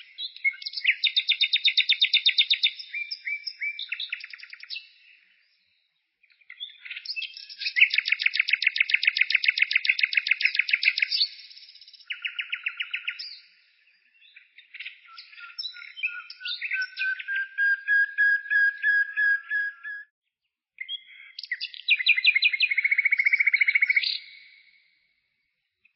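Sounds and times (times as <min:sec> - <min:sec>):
songbird singing: 0:00.0 - 0:20.1, 0:20.8 - 0:25.9.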